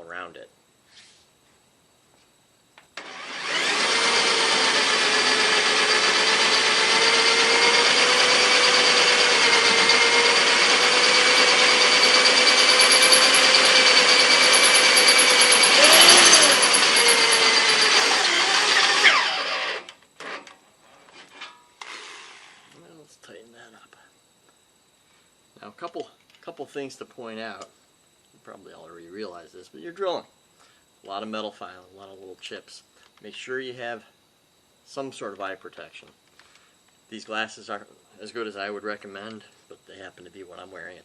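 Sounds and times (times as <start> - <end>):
cordless drill boring through steel: 3.0 - 20.5.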